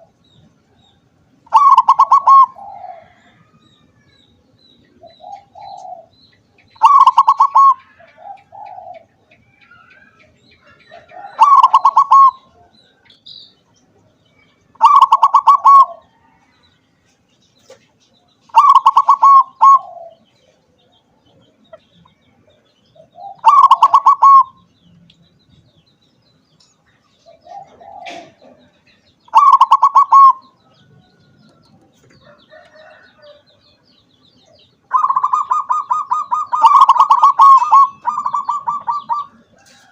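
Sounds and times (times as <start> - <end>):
dove cooing: 1.4 - 3.6, 5.0 - 6.2, 6.8 - 12.8, 14.8 - 16.2, 18.5 - 20.5, 23.0 - 24.6, 27.2 - 33.5, 34.9 - 39.9
softer lower dove coos: 1.5 - 4.0, 4.9 - 6.2, 6.8 - 12.8, 14.8 - 16.5, 18.5 - 20.3, 23.0 - 24.6, 27.2 - 33.4, 34.9 - 39.9.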